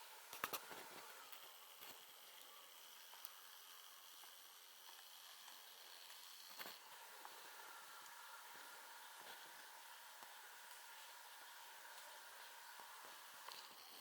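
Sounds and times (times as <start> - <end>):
faint steady hiss: 0.0 - 14.0
faint high steady tone: 6.8 - 14.0.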